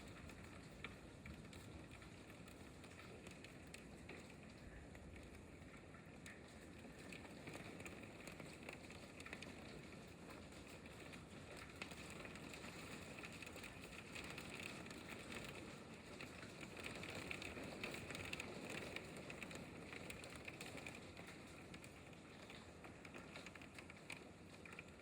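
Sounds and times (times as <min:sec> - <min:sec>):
hail pattering: 0:00.0 - 0:25.0.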